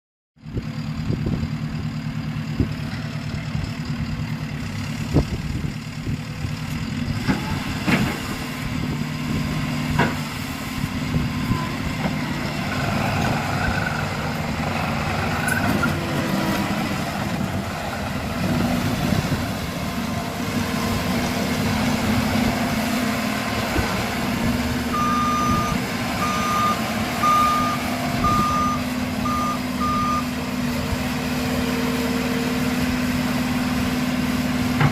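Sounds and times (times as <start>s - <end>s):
diesel engine running: 0.4s - 34.9s
reversing alarm beeping: 24.9s - 30.3s.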